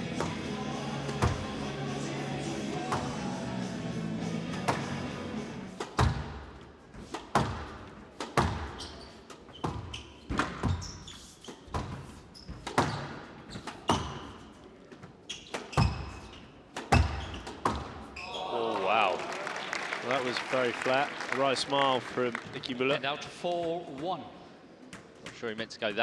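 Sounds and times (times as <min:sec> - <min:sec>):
shoes squeaking on court floor: 0:00.0 - 0:01.9, 0:04.4 - 0:18.6
music: 0:00.0 - 0:05.8
squash ball striking racket and walls: 0:00.0 - 0:18.3.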